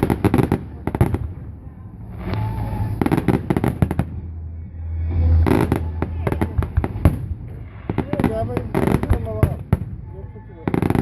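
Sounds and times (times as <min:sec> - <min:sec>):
fireworks bangs and crackles: 0:00.0 - 0:11.0
low booming rumble: 0:00.0 - 0:11.0.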